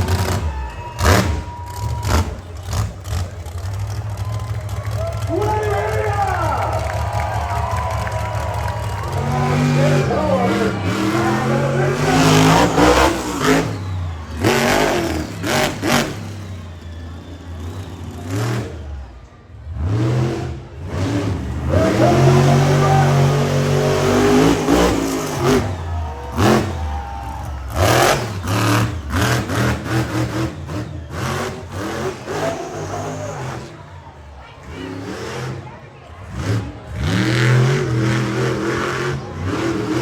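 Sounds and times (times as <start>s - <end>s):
sharp engine bangs: 0.0s - 16.9s, 19.8s - 33.9s
truck engine revving hard: 0.0s - 40.0s.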